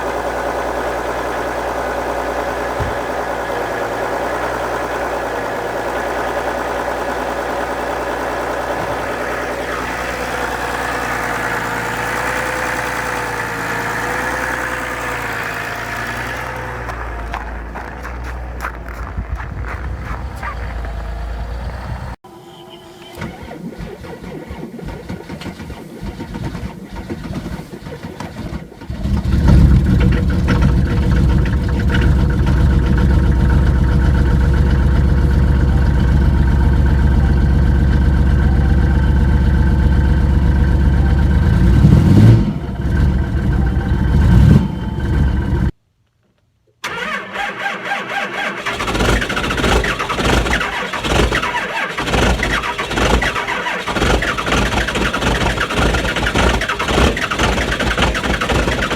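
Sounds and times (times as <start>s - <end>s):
diesel engine starting and running: 0.0s - 45.8s, 46.8s - 58.9s
second engine starting unevenly: 0.0s - 45.8s, 46.8s - 58.9s.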